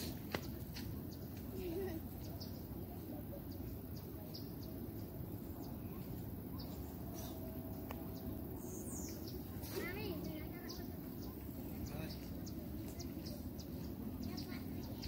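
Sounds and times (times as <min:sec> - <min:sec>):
birds chirping: 0:00.0 - 0:15.0
low steady rumble: 0:02.2 - 0:15.0.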